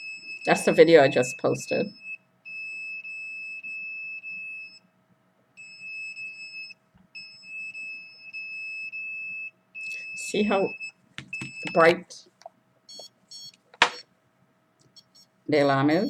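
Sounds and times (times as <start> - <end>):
electronic alarm beeping: 0.0 - 4.8, 5.6 - 12.0, 12.9 - 14.1, 15.0 - 15.3.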